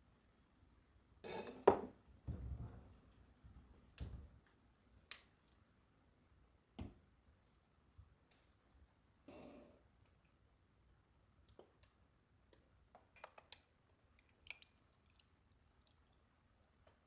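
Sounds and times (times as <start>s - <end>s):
dull thud: 2.3s - 2.9s.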